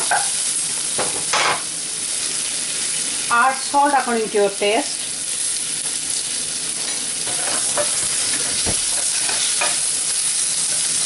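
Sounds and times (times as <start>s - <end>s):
potatoes sizzling in oil: 0.0s - 11.0s
utensil scraping a pan: 6.8s - 9.9s.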